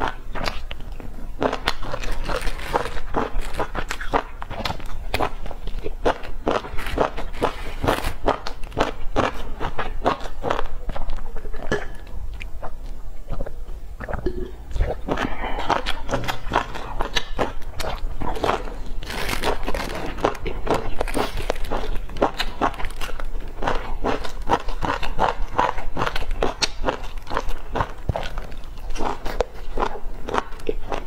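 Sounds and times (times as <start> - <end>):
crunchy chewing: 0.0 - 31.0
wet mouth clicks: 10.9 - 18.0.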